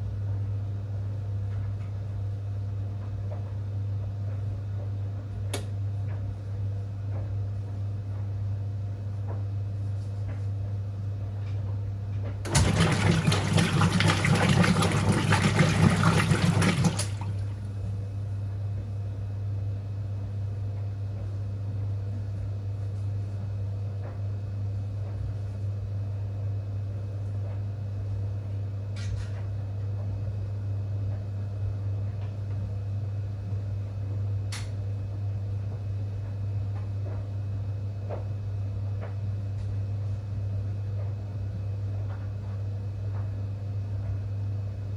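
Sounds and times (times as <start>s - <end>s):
washing machine low hum: 0.0s - 44.9s
water rushing in washing machine: 12.2s - 18.0s.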